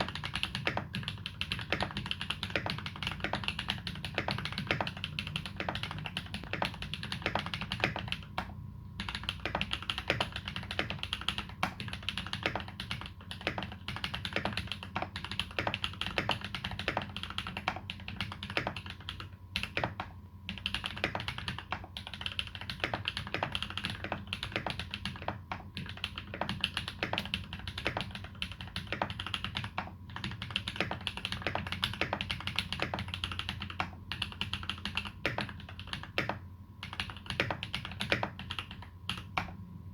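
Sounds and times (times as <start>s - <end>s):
mechanical keyboard typing: 0.0s - 39.6s.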